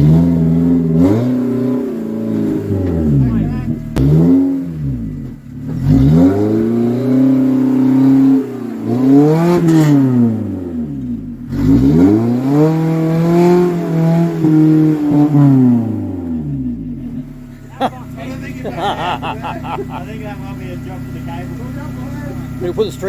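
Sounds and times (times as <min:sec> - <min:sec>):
engine revving hard: 0:00.0 - 0:03.0, 0:04.0 - 0:05.0, 0:05.6 - 0:10.6, 0:11.5 - 0:16.3.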